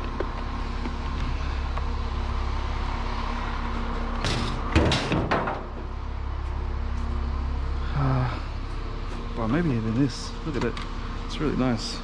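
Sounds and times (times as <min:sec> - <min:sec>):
vehicle engine idling: 0:00.0 - 0:12.0
clattering metal knocks: 0:04.2 - 0:05.9.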